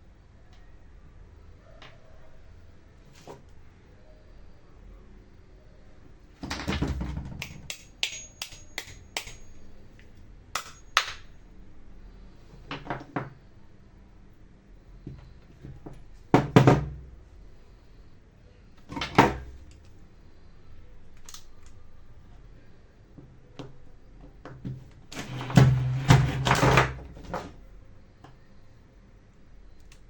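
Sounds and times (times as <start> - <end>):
tools knocking and clicking: 6.5 - 9.6, 10.6 - 11.3.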